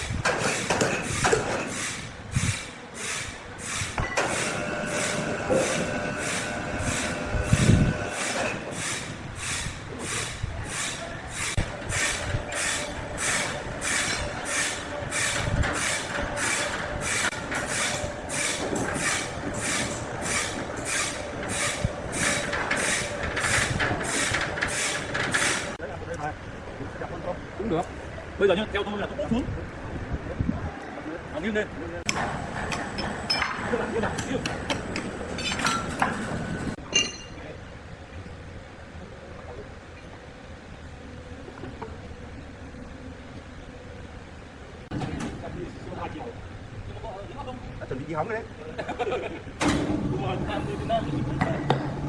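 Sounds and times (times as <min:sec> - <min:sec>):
sawmill machinery clacking: 0:00.0 - 0:25.8, 0:32.1 - 0:36.8.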